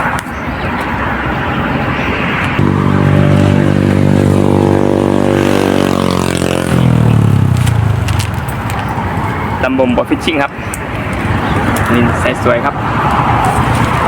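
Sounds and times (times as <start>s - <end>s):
vehicle engine passing by: 2.2s - 9.7s.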